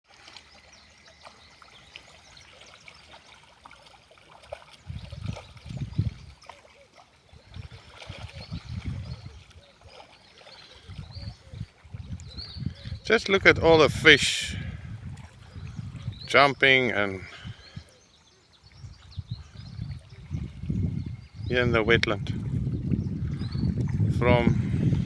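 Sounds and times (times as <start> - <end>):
fish splashing in water: 0.1 - 12.0.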